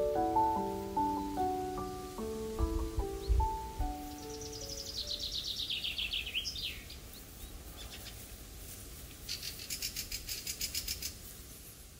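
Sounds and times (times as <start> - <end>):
songbird trilling: 0.6 - 8.2.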